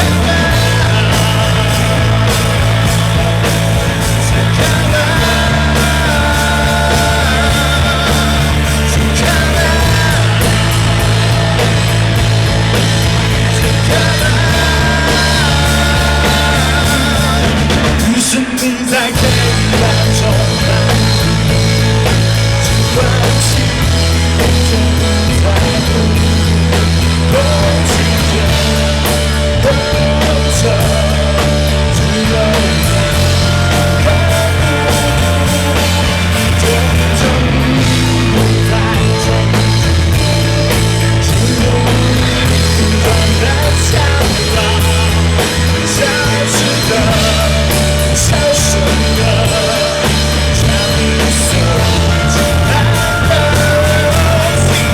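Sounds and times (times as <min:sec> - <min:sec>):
drums: 0:00.0 - 0:54.9
heavy bass line: 0:00.0 - 0:54.9
live rock band playing: 0:00.0 - 0:54.9.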